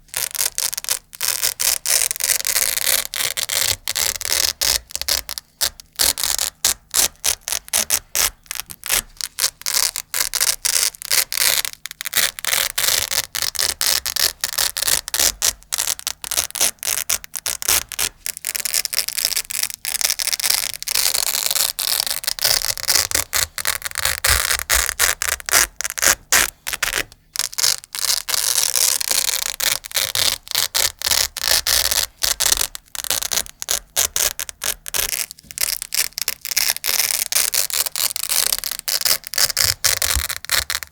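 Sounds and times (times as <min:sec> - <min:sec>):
velcro pulled apart crackling: 0:00.0 - 0:40.9.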